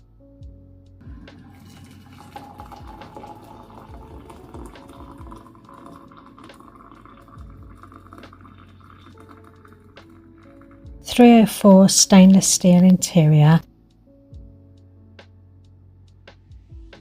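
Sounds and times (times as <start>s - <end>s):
faint music: 0.0s - 17.0s
water boiling in kettle: 1.1s - 10.6s.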